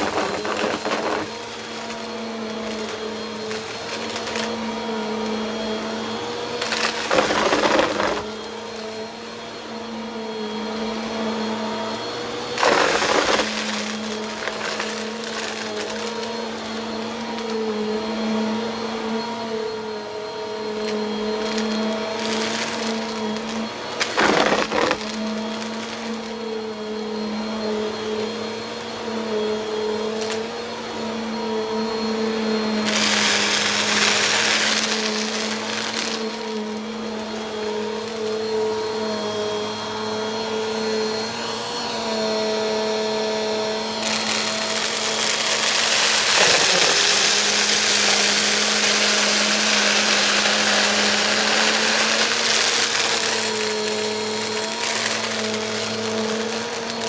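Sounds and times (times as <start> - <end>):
loud crackling rattle: 0.0 - 4.5, 6.6 - 8.4, 12.6 - 16.2, 21.4 - 26.4, 32.8 - 37.4, 44.0 - 57.0
vacuum cleaner motor hum: 0.0 - 57.0.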